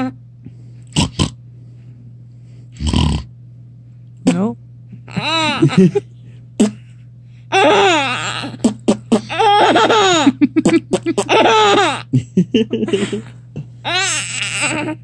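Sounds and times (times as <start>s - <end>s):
steady low hum: 0.0s - 15.0s
baby laughing: 5.1s - 6.0s, 7.5s - 12.1s, 12.9s - 15.0s.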